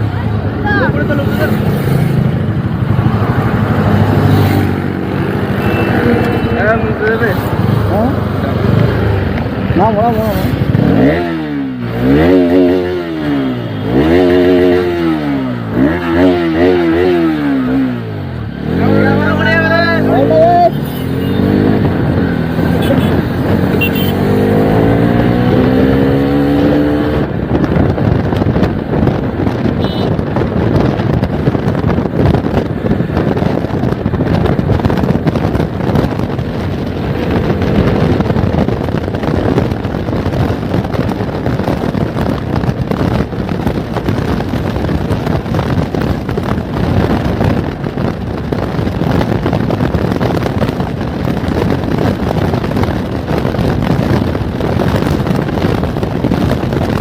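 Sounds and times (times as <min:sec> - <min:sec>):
motorcycle engine rumble: 0:00.0 - 0:57.0
wind buffeting microphone: 0:00.0 - 0:57.0.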